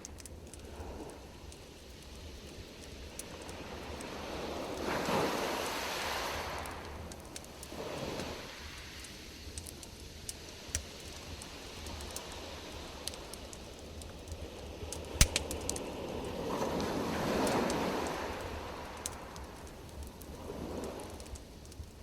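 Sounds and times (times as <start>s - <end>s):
campfire crackling: 0.0s - 22.0s.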